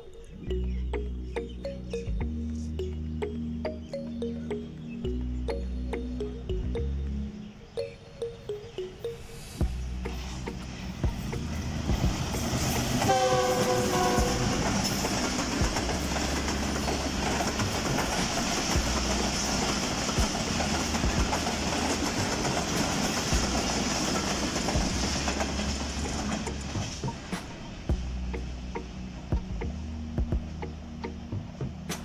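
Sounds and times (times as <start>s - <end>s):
train coaches rumbling: 0.1s - 32.0s
wheels clacking over rail joints: 9.9s - 29.8s
locomotive horn blast: 13.0s - 14.9s.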